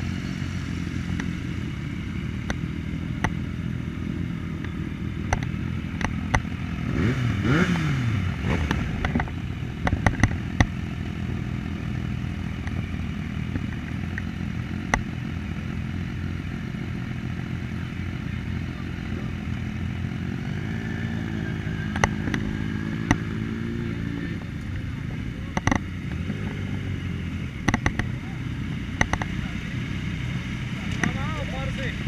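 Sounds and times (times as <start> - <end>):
motorcycle engine running: 0.0 - 32.0
sharp clicks: 29.0 - 29.3.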